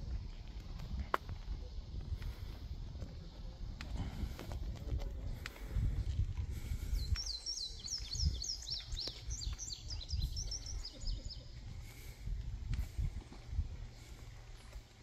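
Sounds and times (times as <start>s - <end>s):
low outdoor rumble: 0.0s - 15.0s
songbird chirping: 6.8s - 12.2s.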